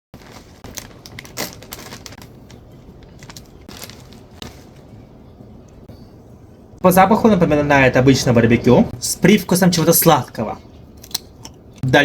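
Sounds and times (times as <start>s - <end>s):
chip bag crinkling: 0.2s - 5.1s.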